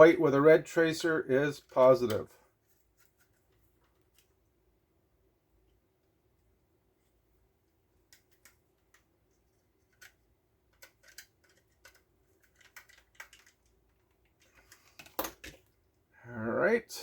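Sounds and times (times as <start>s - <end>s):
hand tools clicking and snipping: 9.9s - 13.5s.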